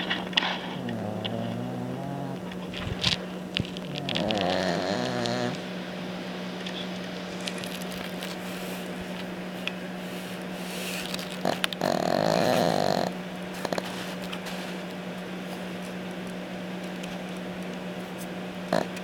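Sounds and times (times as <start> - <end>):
dog snoring: 0.0 - 5.7, 11.4 - 14.3, 18.7 - 19.0
steady low hum: 0.0 - 19.0.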